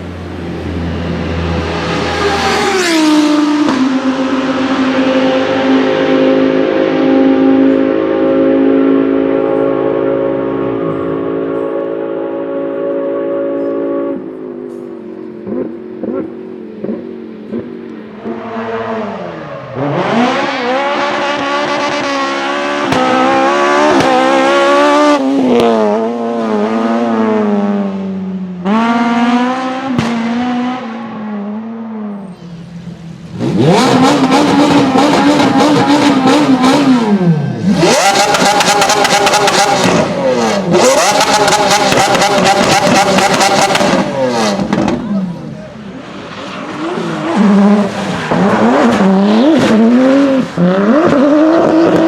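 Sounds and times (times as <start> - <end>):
car engine revving hard: 15.4 - 31.8, 33.3 - 46.0, 46.6 - 52.0.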